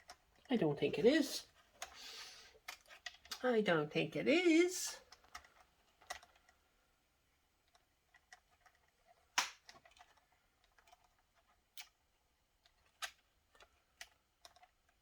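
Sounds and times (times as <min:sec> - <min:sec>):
plastic laptop parts clicking: 0:05.1 - 0:06.6, 0:07.6 - 0:15.0.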